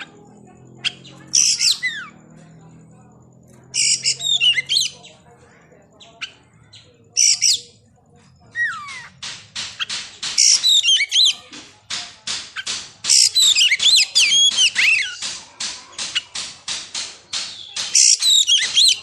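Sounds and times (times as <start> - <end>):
bird harsh rasping notes: 0.0 - 19.0
bird whistled phrases: 3.8 - 5.0, 10.4 - 11.3.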